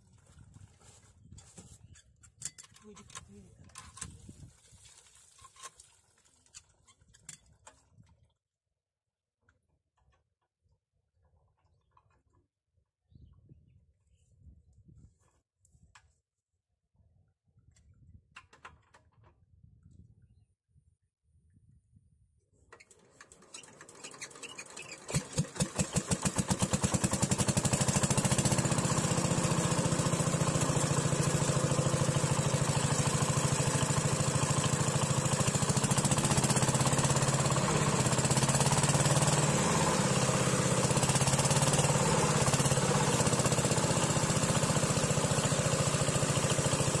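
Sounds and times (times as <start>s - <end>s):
diesel pump engine starting: 22.8s - 47.0s.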